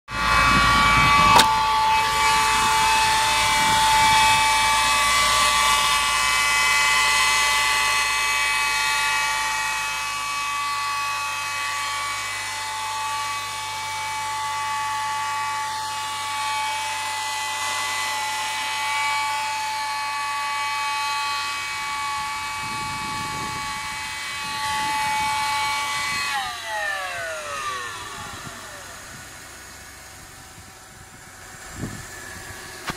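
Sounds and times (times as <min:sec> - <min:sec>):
high-pitched engine whine: 0:00.1 - 0:32.9
car engine running: 0:27.6 - 0:32.9.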